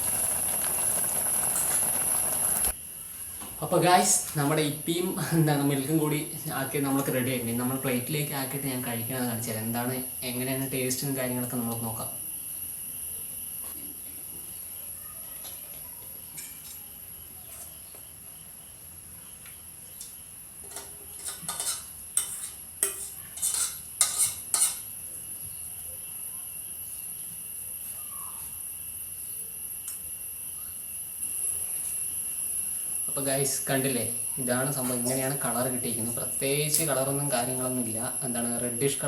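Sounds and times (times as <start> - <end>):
high-pitched whine: 25.1 - 39.0.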